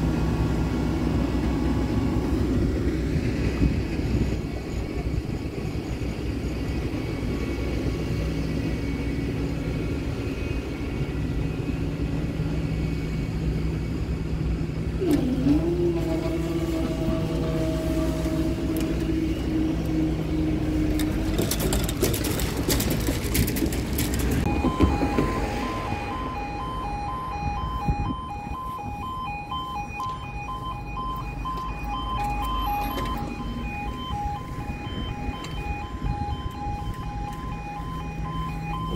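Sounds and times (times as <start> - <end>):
vehicle engines running: 0.0 - 38.9
level crossing alarm: 24.4 - 38.9.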